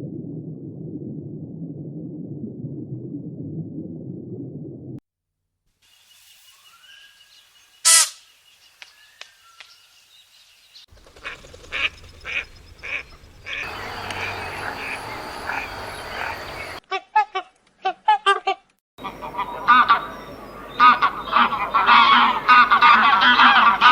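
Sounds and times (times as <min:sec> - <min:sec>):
noisy animal chorus: 0:11.0 - 0:16.8, 0:19.0 - 0:23.9
animal calls: 0:11.2 - 0:16.8.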